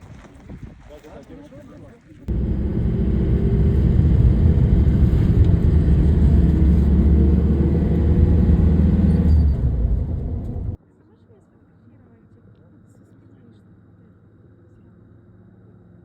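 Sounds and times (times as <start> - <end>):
vehicle engine droning: 2.3 - 10.8.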